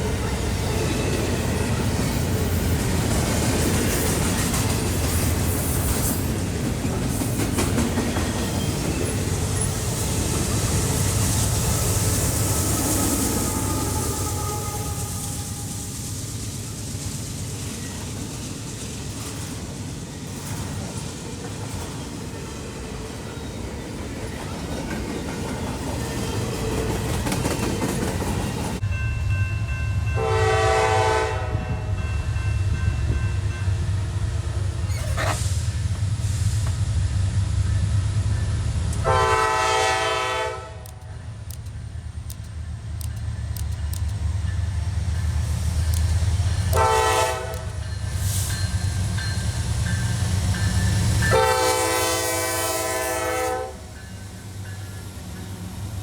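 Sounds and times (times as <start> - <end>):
train air horn blasts: 12.6 - 16.0, 30.2 - 32.0, 39.0 - 41.1, 46.7 - 47.8, 51.3 - 54.0.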